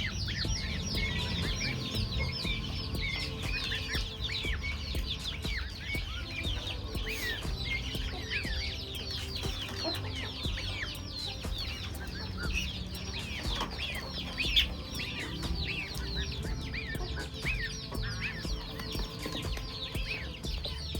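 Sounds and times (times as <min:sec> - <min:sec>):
chickens chirping and peeping: 0:00.0 - 0:20.9
chickens clucking: 0:00.0 - 0:20.9
low rumble: 0:00.0 - 0:20.9.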